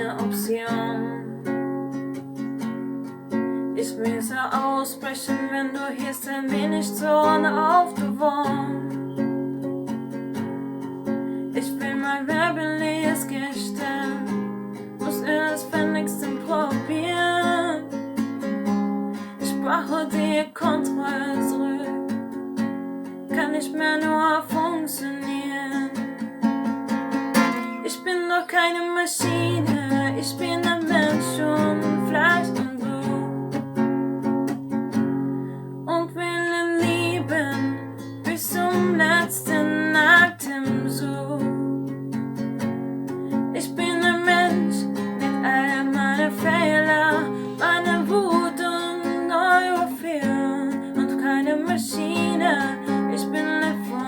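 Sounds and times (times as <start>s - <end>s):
strummed acoustic guitar: 0.0s - 54.0s
person singing: 43.6s - 54.0s.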